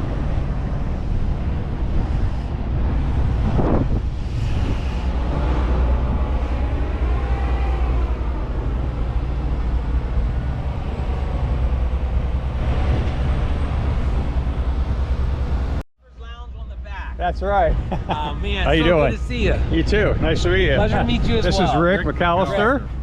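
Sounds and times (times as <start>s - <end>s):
tyre and wind noise: 0.0s - 15.8s
vehicle engine drone: 0.0s - 23.0s.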